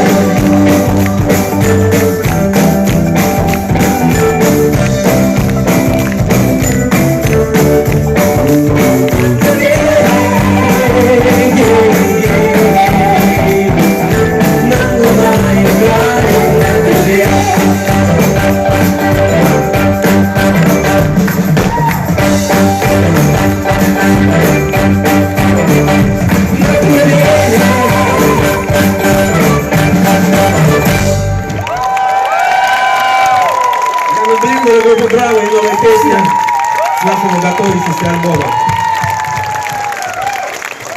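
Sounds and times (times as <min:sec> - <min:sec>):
steady drum beat: 0:00.0 - 0:31.5
rock band playing live: 0:00.0 - 0:32.2.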